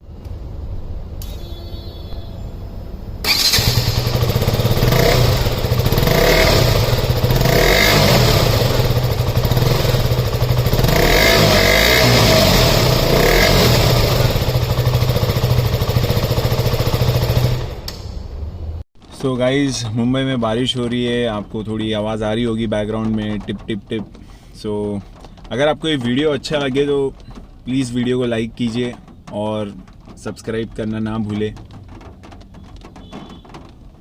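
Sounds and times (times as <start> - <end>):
motorcycle engine running: 3.3 - 18.8.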